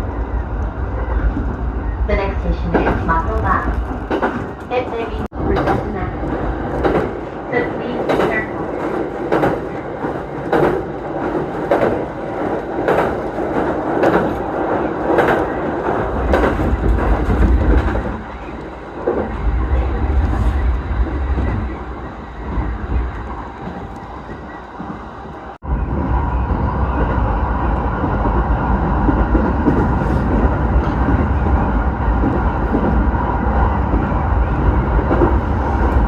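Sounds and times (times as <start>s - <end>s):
train low rumble: 0.0s - 36.0s
train wheels clattering over rail joints: 8.0s - 14.4s.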